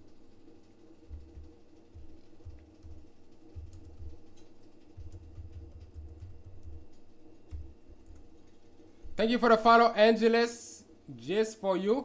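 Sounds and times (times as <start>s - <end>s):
electrical hum: 0.0s - 12.0s
keyboard typing and clicking: 1.1s - 8.3s.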